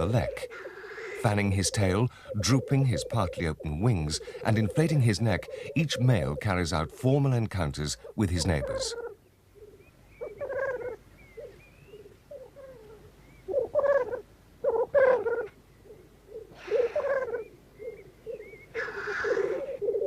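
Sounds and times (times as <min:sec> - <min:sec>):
black grouse bubbling calls: 0:00.0 - 0:20.0
grouse harsh hissing call: 0:00.4 - 0:02.7, 0:16.5 - 0:17.4, 0:18.8 - 0:20.0.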